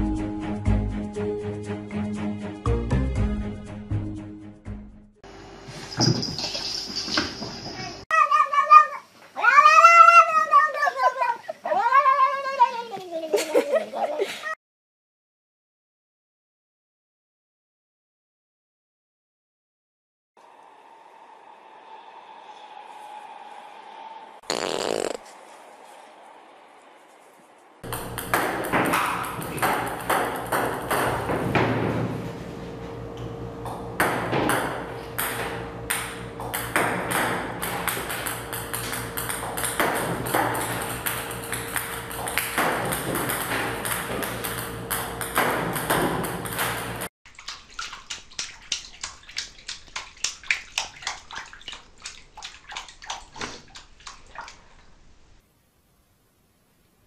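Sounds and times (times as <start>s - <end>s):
water sloshing in a bathtub: 47.3s - 55.2s.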